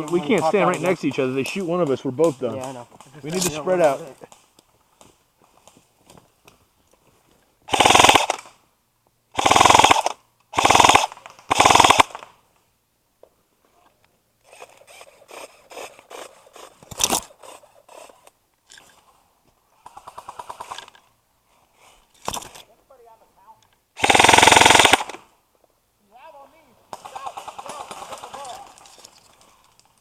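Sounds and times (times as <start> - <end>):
airsoft guns rapid fire: 7.7 - 8.5, 9.4 - 12.3, 24.0 - 25.2, 26.9 - 28.8.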